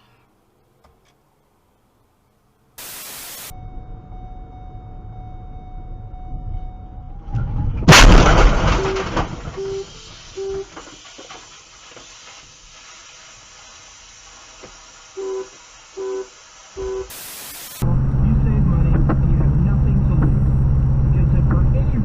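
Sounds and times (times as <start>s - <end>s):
road and engine rumble: 0.0s - 22.0s
short even beeps: 3.5s - 7.2s, 8.7s - 10.7s
loud vehicle crash: 7.0s - 11.6s
clattering debris: 7.7s - 11.6s.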